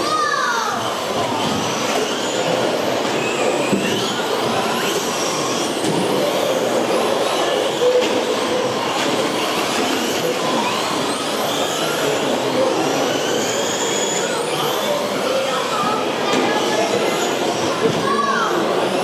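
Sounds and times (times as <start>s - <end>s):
electric motors whining: 0.0s - 19.0s.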